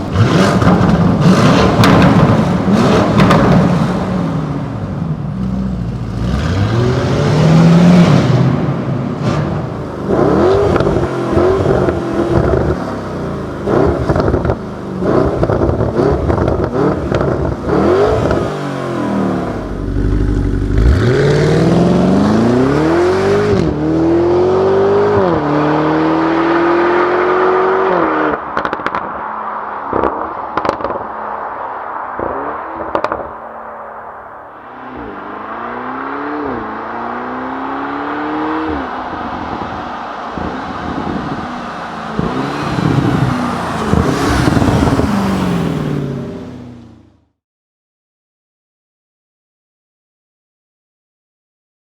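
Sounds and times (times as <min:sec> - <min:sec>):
exhaust crackles and pops: 0:00.0 - 0:04.0, 0:13.6 - 0:18.6, 0:28.3 - 0:35.1, 0:38.7 - 0:45.2
car engine accelerating: 0:00.0 - 0:47.3.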